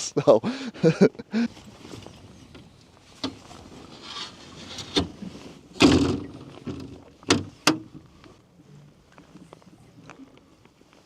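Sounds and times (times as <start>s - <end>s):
rustle: 0.8s - 11.0s
knocks and thumps in a boat: 1.9s - 8.1s.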